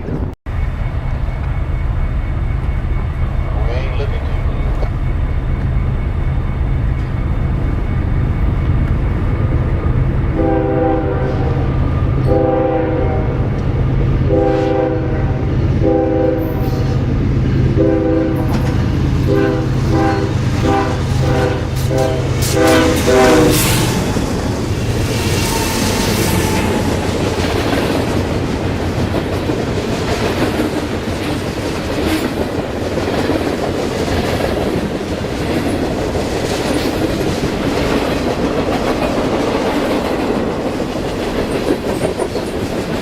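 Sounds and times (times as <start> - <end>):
locomotive air horn blasts: 10.3 - 11.7, 12.3 - 13.5, 14.2 - 17.0, 17.6 - 18.6, 19.2 - 24.0
train wheels clacking on rails: 16.4 - 43.0.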